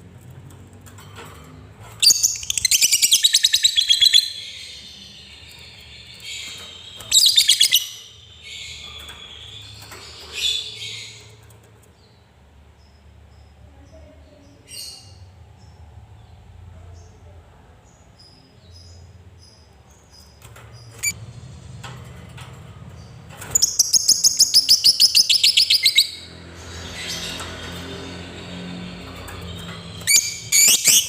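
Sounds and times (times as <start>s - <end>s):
fast run of shrill chirps: 2.0s - 11.2s, 23.5s - 31.0s
lovebird chirping: 2.0s - 11.3s, 23.5s - 27.5s, 30.0s - 31.0s.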